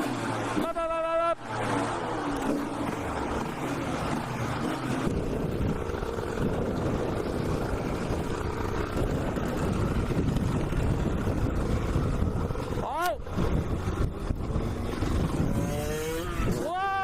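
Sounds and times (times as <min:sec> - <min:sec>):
motorcycle engine running: 0:00.0 - 0:17.0
wind rush on microphone: 0:04.4 - 0:16.7.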